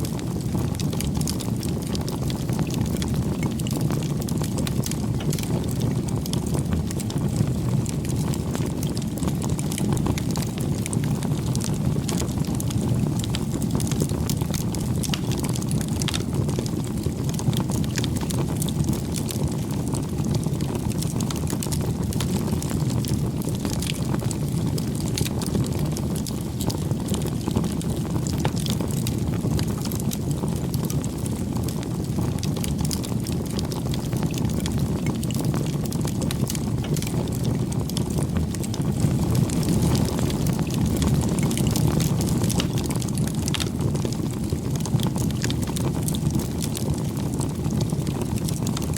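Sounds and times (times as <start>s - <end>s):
campfire crackling: 0.0s - 48.9s.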